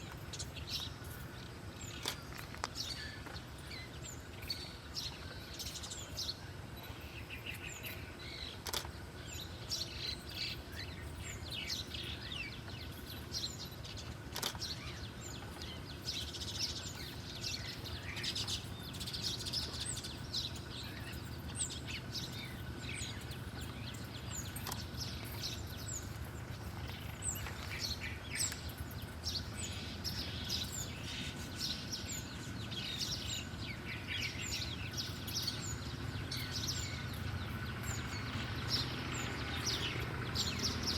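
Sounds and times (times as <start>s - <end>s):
low background hum: 0.0s - 40.9s
songbirds chirping: 0.0s - 40.9s
brief clicks: 8.6s - 8.9s.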